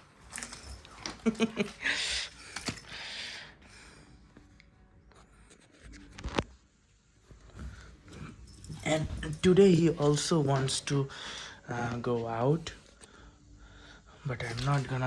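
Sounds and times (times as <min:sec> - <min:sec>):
rustling and scuffling: 0:00.0 - 0:03.0, 0:05.6 - 0:12.9.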